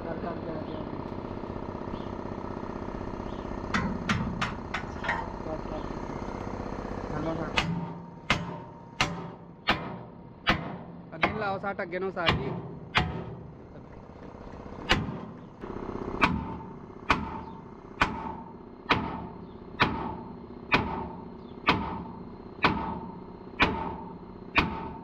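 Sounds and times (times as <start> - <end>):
hammer striking steel: 3.7 - 5.3, 7.5 - 13.6, 14.9 - 15.3, 16.2 - 25.0.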